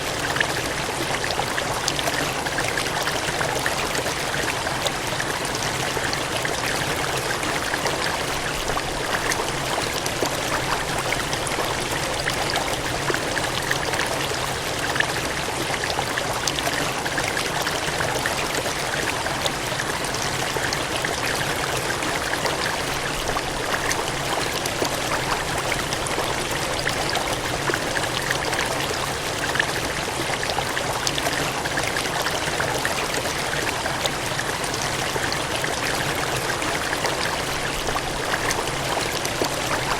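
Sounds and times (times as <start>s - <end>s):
water gushing and cascading: 0.0s - 39.9s.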